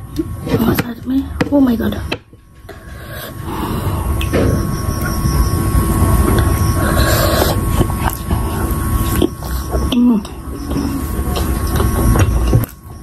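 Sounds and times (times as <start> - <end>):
chewing soft food: 5.9 - 13.0.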